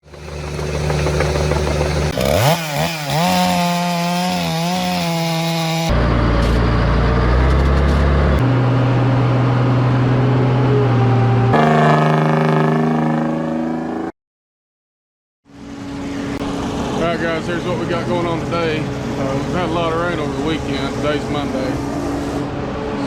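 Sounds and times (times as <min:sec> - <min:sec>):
logging machinery engines revving: 0:00.0 - 0:10.4, 0:11.3 - 0:14.1.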